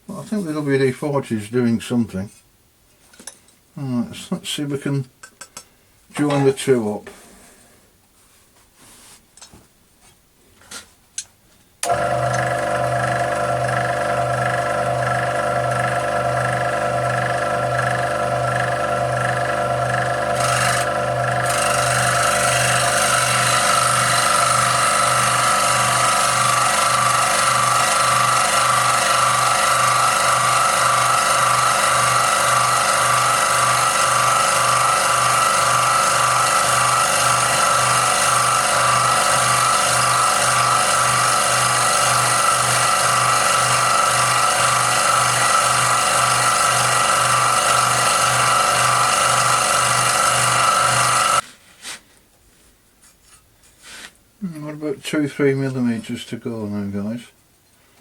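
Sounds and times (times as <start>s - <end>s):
scroll saw cutting metal: 11.8s - 51.4s.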